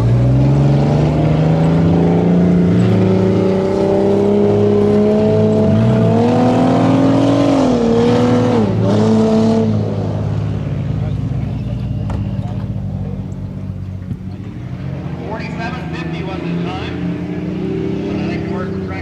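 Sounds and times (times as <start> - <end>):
truck engine running hard: 0.0 - 19.0.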